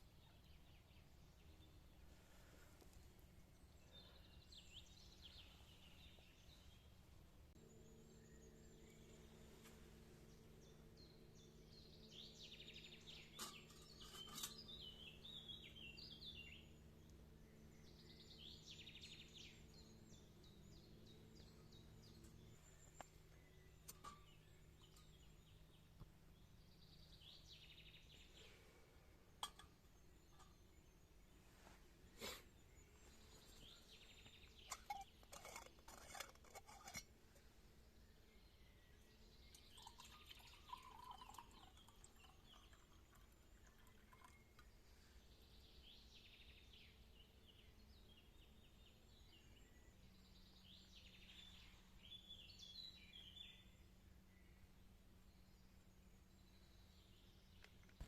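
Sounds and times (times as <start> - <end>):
faint low hum: 0.0 - 58.0
birds warbling: 39.8 - 44.3.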